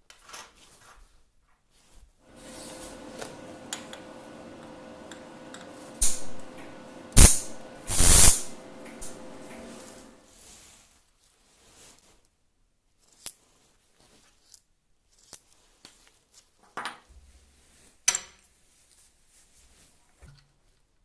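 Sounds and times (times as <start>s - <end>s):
short scrape: 7.2s - 10.6s.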